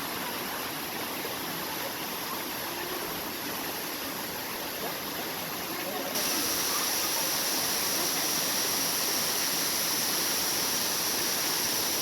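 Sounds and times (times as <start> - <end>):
waterfall rushing: 6.1 - 12.0.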